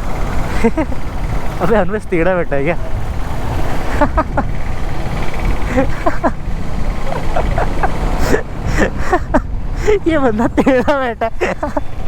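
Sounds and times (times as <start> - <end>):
motorcycle engine running: 0.0 - 10.4
wind rushing over microphone: 2.8 - 10.9.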